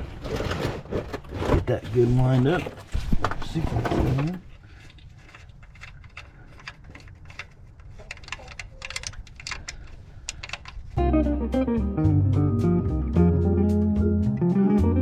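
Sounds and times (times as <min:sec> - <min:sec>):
hands and tools clicking: 0:04.6 - 0:11.0
guitar music: 0:11.0 - 0:15.0.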